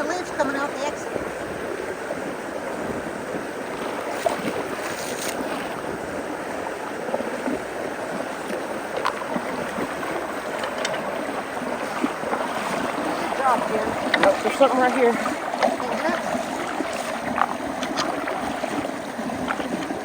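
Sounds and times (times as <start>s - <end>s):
water rushing through culvert: 0.0s - 20.0s
small clicks and splashes: 3.8s - 5.8s, 8.3s - 20.0s.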